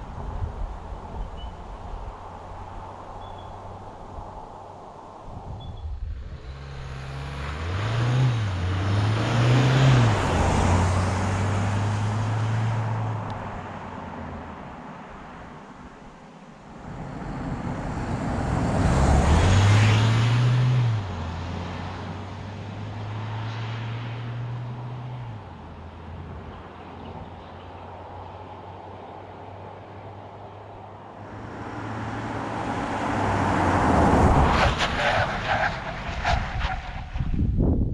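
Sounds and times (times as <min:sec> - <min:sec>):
diesel van engine accelerating: 0:06.3 - 0:13.7.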